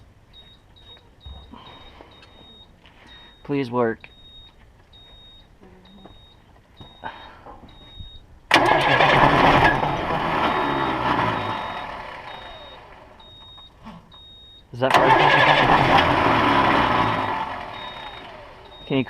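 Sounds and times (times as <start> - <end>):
dashboard warning beeper chirping: 0.3 - 19.0
diesel engine cranking: 8.5 - 19.0.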